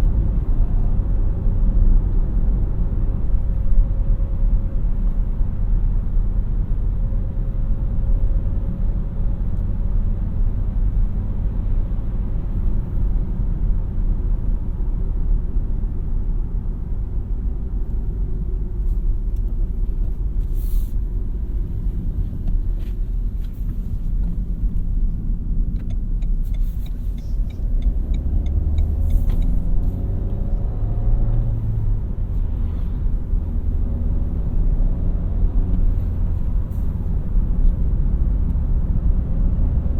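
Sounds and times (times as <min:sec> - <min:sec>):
road noise: 0:00.0 - 0:39.9
car engine accelerating: 0:23.6 - 0:39.9.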